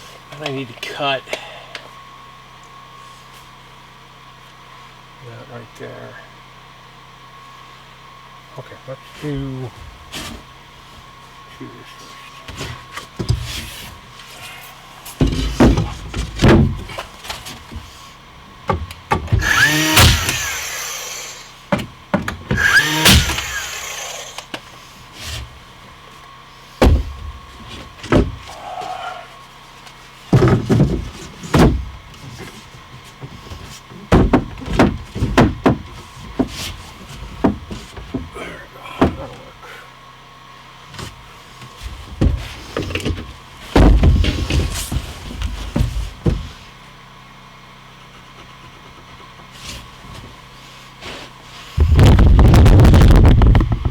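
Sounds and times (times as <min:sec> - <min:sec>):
boards and tools clunking: 0:12.3 - 0:14.5, 0:15.1 - 0:18.0, 0:18.6 - 0:29.0, 0:29.8 - 0:39.8, 0:40.8 - 0:46.9, 0:47.7 - 0:53.9
noisy bursts: 0:19.4 - 0:21.6, 0:22.5 - 0:24.4, 0:51.8 - 0:53.9.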